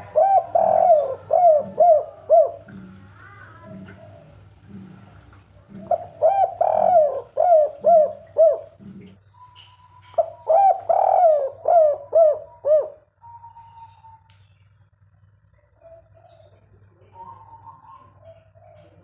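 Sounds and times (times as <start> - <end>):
dove cooing: 0.0 - 14.3, 15.6 - 19.0.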